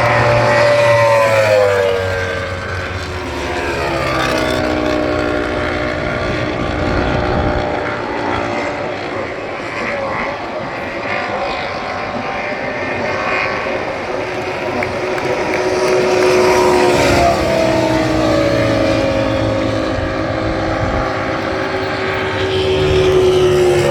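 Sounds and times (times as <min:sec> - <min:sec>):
steady engine drone: 0:00.0 - 0:23.9
motorcycle engine passing by: 0:13.1 - 0:23.9.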